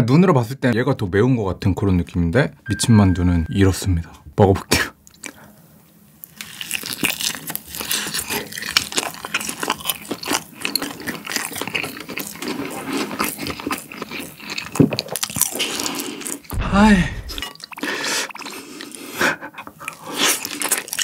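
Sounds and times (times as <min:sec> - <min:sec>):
chewing with small clicks: 0:05.0 - 0:05.4, 0:06.2 - 0:16.5.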